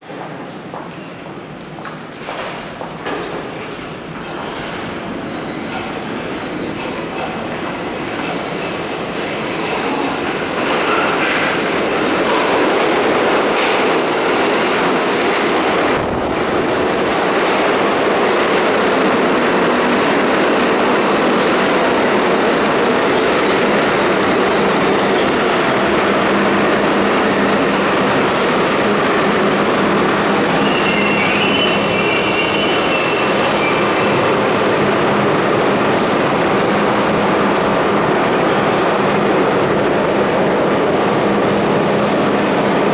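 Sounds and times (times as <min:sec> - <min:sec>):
subway train wheels rumbling: 0:00.0 - 0:42.9
high wheel squeal: 0:30.4 - 0:34.5.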